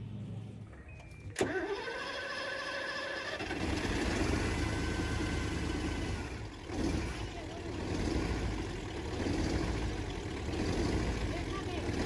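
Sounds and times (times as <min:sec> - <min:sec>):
diesel engine rumbling: 0:00.0 - 0:12.0
starter motor whine: 0:01.2 - 0:06.6.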